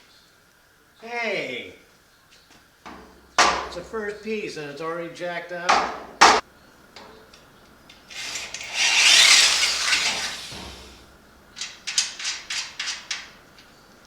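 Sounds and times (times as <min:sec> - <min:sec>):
hand tool scraping steel: 0:08.2 - 0:11.1.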